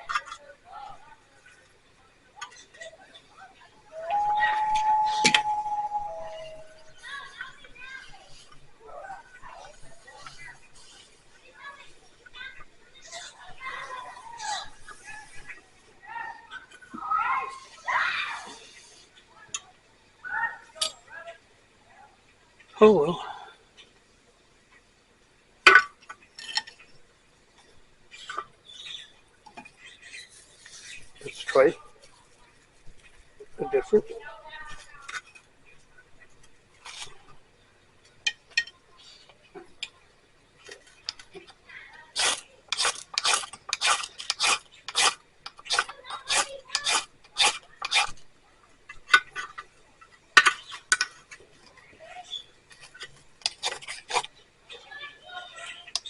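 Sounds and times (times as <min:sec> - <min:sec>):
fire striker rasping: 0:42.2 - 0:48.2, 0:52.3 - 0:54.4
hard gear clinking and scraping: 0:42.2 - 0:48.2.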